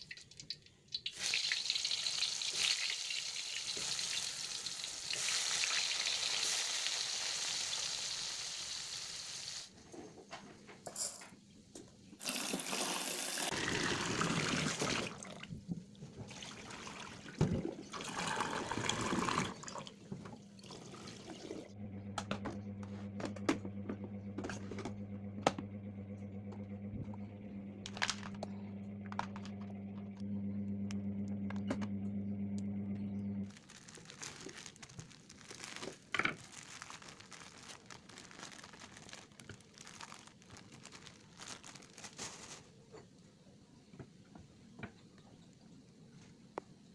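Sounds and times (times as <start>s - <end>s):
food sizzling in hot oil: 1.0s - 9.7s
water splashing into a sink: 12.2s - 21.7s
steady low hum: 21.6s - 33.5s.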